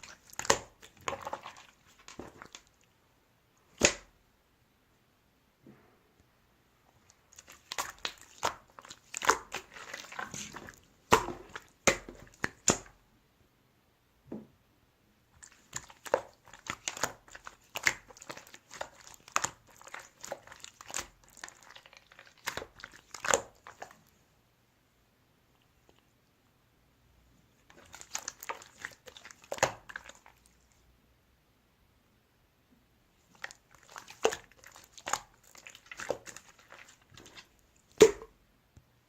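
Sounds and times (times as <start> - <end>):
slime crackling and popping: 7.2 - 12.9, 15.4 - 24.0, 27.7 - 30.4, 33.3 - 38.3.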